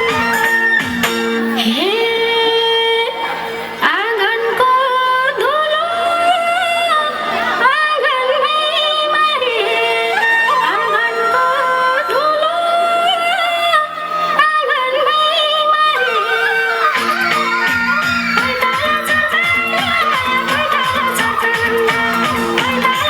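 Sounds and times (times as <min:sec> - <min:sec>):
instrumental rhythm: 0:00.0 - 0:01.8, 0:16.4 - 0:23.0
person singing folk song: 0:01.6 - 0:23.0.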